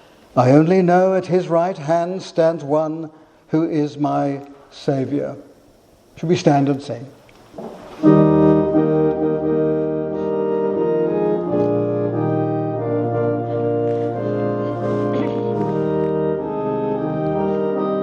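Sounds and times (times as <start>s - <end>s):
organ playing sustained chords: 8.0s - 18.0s.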